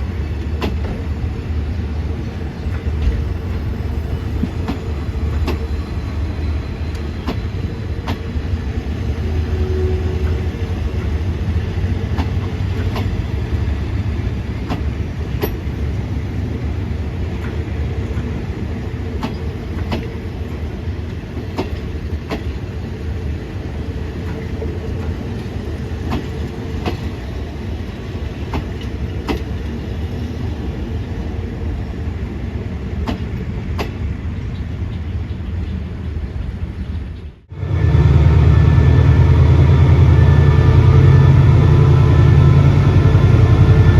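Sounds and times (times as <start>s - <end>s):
train rumbling on rails: 0.0s - 43.9s
wheels clicking over rail joints: 10.2s - 16.0s, 24.1s - 27.2s.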